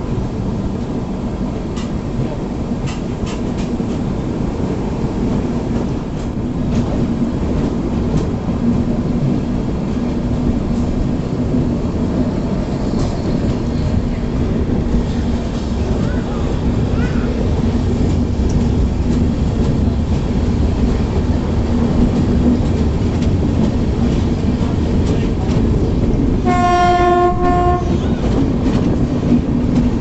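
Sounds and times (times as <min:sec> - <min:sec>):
train rumbling on track: 0:00.0 - 0:30.0.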